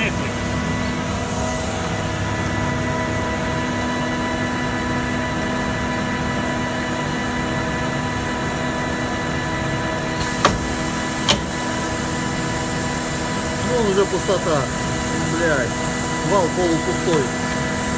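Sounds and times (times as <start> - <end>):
machine motor hum: 10.0 - 17.4
sharp click: 10.2 - 11.8
high hiss: 10.2 - 17.9.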